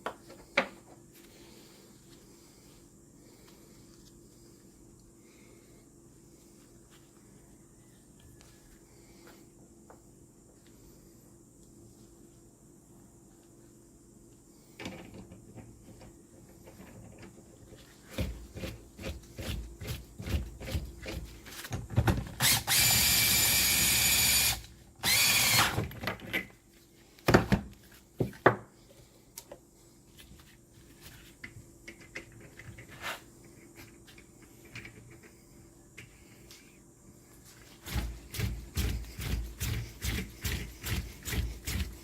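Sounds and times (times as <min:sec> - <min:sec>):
power tool running: 0:22.4 - 0:25.8.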